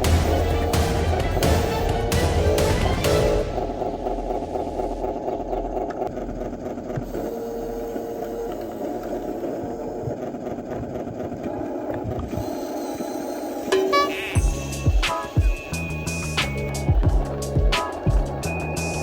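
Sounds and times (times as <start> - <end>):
toy truck electric motor running: 5.9 - 14.8.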